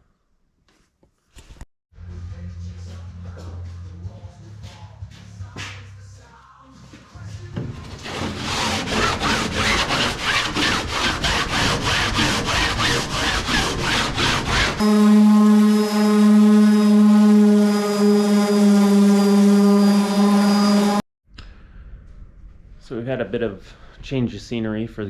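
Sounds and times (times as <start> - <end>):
hand sanding wood: 8.0 - 21.0
loud steady machine hum: 14.8 - 21.0.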